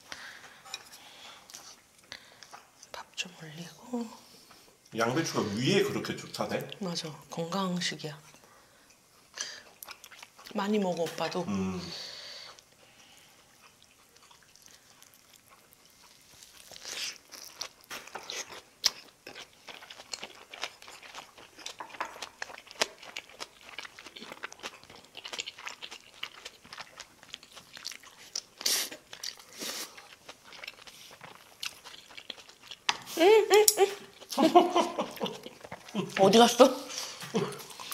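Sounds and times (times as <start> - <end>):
food chewing and crunching: 8.2 - 11.5, 12.4 - 37.9.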